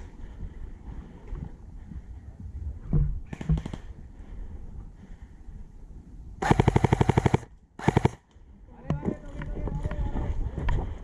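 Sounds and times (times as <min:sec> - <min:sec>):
airsoft rifle shots: 0:03.3 - 0:03.9, 0:06.4 - 0:08.2.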